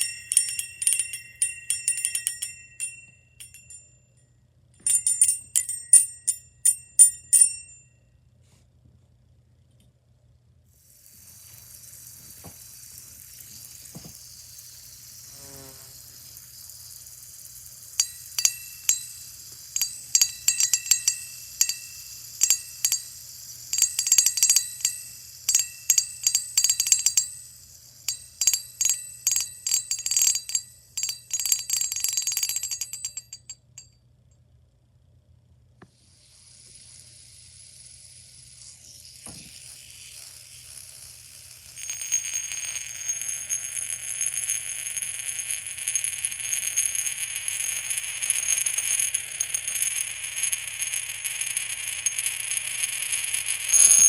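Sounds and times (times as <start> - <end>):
toys clinking together: 0.0 - 3.9, 4.8 - 7.8, 11.1 - 33.9, 39.0 - 54.0
steady high hiss: 10.8 - 29.3.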